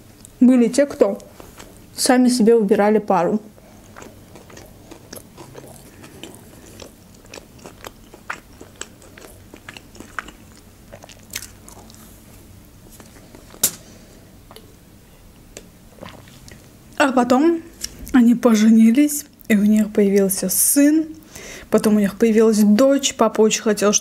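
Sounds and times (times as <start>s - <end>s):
person chewing: 3.6s - 12.2s, 15.9s - 16.7s.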